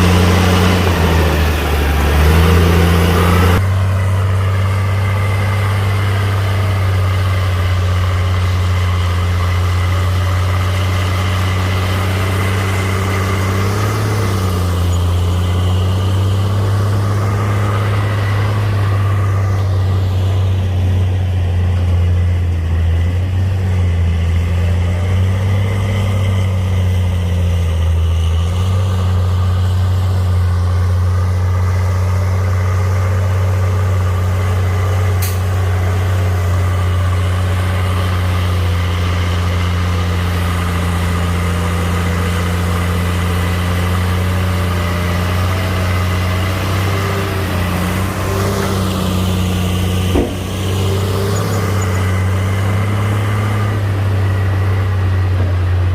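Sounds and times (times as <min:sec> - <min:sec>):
diesel engine droning: 0:00.0 - 0:55.9
short knock: 0:50.1 - 0:51.1.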